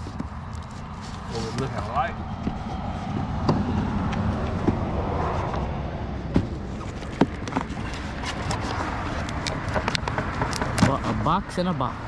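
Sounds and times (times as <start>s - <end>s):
cardboard box taps and scrapes: 0.0s - 5.6s, 6.3s - 11.2s
low rumble: 2.0s - 6.8s.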